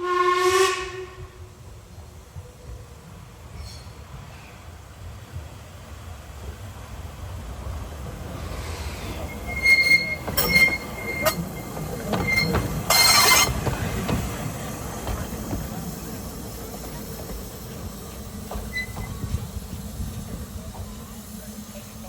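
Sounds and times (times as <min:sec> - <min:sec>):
train rumble: 0:00.0 - 0:22.0
train wheels squealing: 0:08.6 - 0:13.8, 0:18.0 - 0:19.6.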